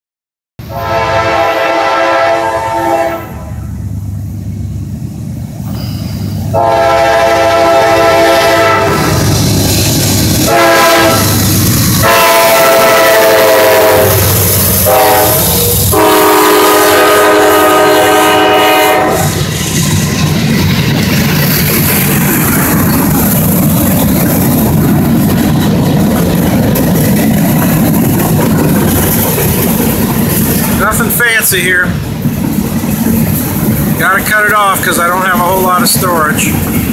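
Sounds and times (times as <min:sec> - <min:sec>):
locomotive air horn blasts: 0:00.6 - 0:03.6, 0:06.5 - 0:09.2, 0:10.4 - 0:11.4, 0:12.0 - 0:19.4
freight cars rumbling on rails: 0:00.6 - 0:36.9.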